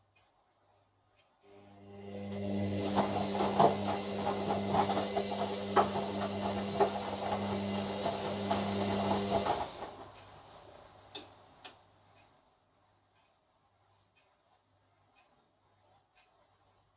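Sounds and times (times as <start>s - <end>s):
washing machine drum motor hum: 1.8s - 11.2s.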